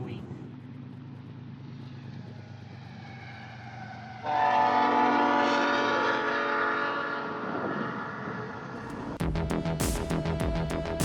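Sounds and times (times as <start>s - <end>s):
locomotive air horn blast: 4.2s - 8.2s.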